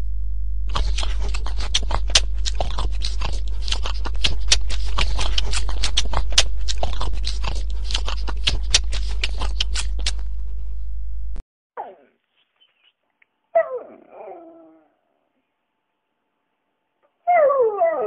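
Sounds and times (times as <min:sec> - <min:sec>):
steady low hum: 0:00.0 - 0:11.4
puppy crunching food: 0:00.7 - 0:10.7.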